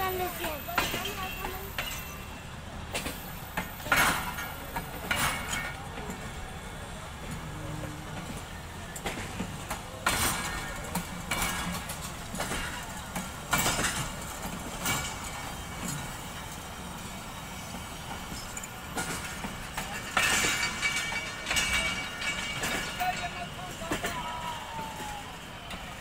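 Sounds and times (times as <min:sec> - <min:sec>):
train wheels knocking over rail joints: 0:00.0 - 0:02.3, 0:02.9 - 0:06.4, 0:07.2 - 0:26.0.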